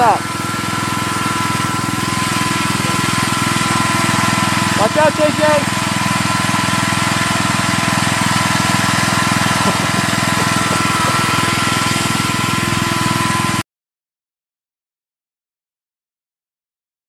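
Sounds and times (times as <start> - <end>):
small engine running: 0.0 - 13.6.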